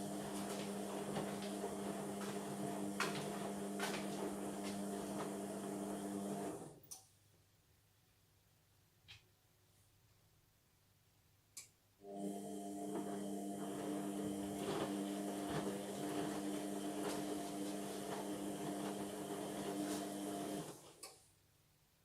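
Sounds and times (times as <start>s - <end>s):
washing machine motor humming: 0.0s - 6.8s, 12.0s - 20.8s
click: 6.9s - 7.1s, 11.6s - 11.8s, 21.0s - 21.2s.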